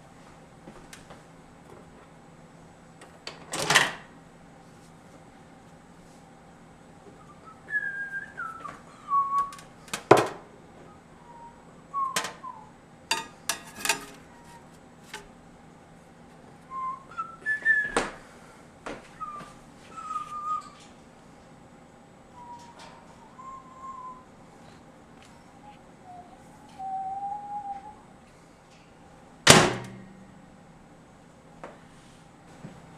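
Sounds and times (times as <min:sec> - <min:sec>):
microwave oven humming: 0:00.0 - 0:32.9
falling whistling squeals: 0:07.2 - 0:09.6, 0:10.9 - 0:12.7, 0:19.2 - 0:20.8, 0:22.3 - 0:24.4, 0:26.0 - 0:28.1.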